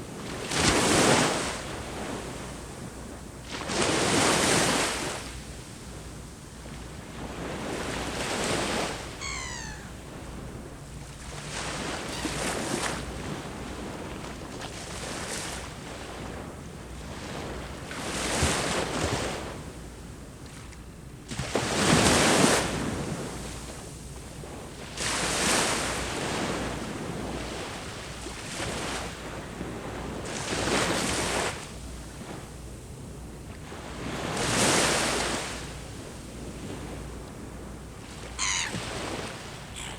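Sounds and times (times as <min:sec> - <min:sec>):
sea waves breaking on shore: 0:00.0 - 0:19.7, 0:33.5 - 0:39.9
high call of falling notes: 0:09.2 - 0:10.0.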